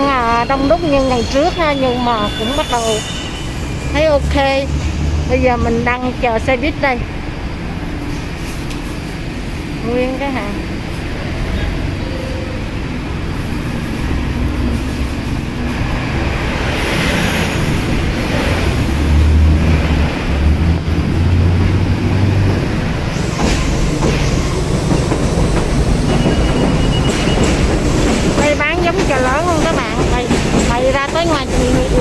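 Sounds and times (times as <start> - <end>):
subway train rumbling overhead: 0.0 - 32.0
wheels clacking on the track: 13.2 - 32.0.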